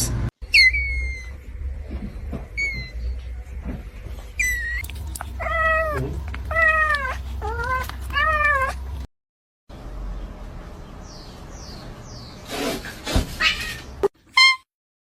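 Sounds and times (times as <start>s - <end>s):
cat meowing: 5.4s - 8.9s.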